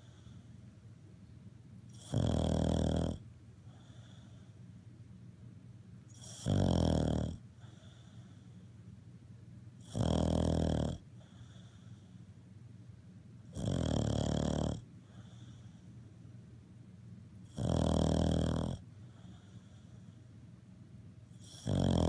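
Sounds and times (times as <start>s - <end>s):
faint dog breaths: 0.0s - 0.8s, 1.9s - 4.8s, 7.3s - 8.9s, 9.8s - 12.5s, 13.6s - 16.2s, 17.5s - 20.5s
dog snoring: 1.9s - 4.5s, 6.1s - 8.5s, 9.8s - 12.2s, 13.5s - 15.8s, 17.4s - 20.1s, 21.3s - 22.0s.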